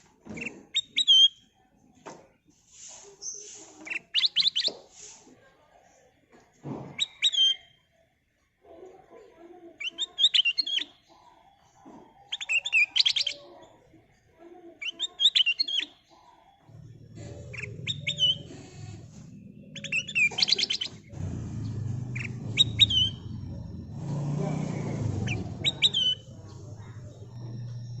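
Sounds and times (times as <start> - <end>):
bulbul whistled song: 6.9 - 7.8, 16.9 - 28.0
low steady rumble: 21.0 - 28.0.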